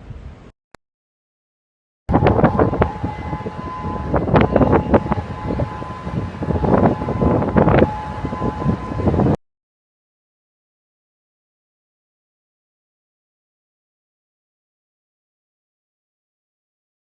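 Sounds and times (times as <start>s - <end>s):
two-note warning siren: 2.1s - 9.4s
wind buffeting microphone: 2.1s - 9.4s.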